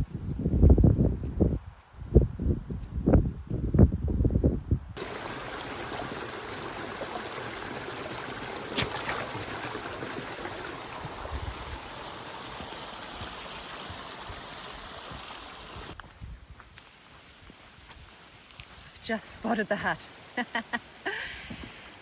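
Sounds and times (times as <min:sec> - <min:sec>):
flowing water rushing: 0:05.0 - 0:16.0.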